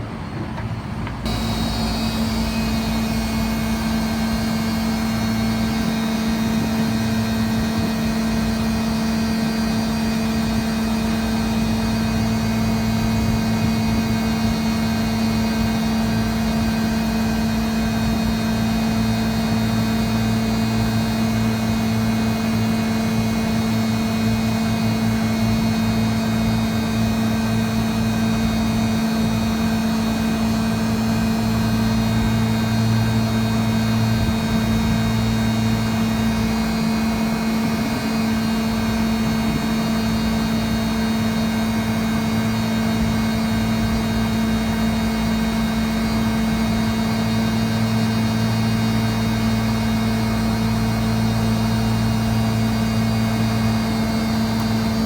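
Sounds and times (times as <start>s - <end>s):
air conditioner humming: 1.2s - 15.0s, 49.5s - 55.0s.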